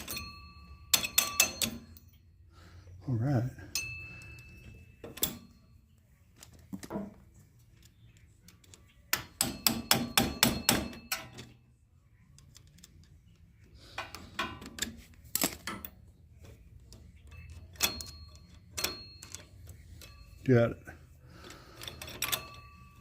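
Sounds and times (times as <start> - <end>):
metal chain clicking: 0.0 - 2.2, 16.8 - 23.0.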